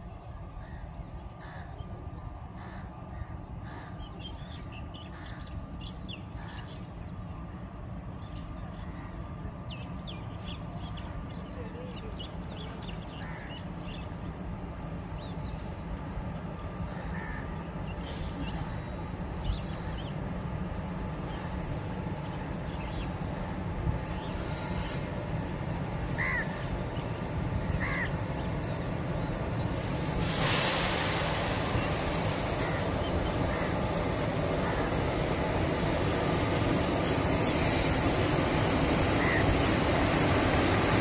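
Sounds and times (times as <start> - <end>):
bird calls: 0.0 - 29.9, 39.1 - 40.2
approaching train rumble: 0.0 - 41.0.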